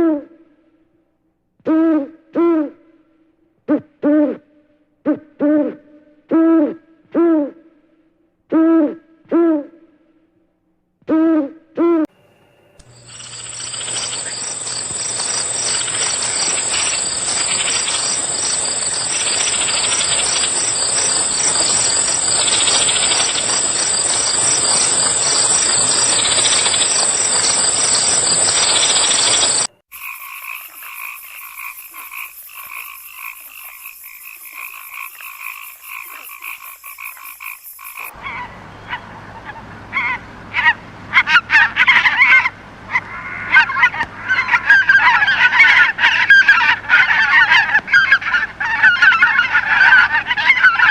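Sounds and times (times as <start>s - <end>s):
frogs calling: 12.8s - 50.9s
frogs trilling in rapid pulses: 12.9s - 38.5s.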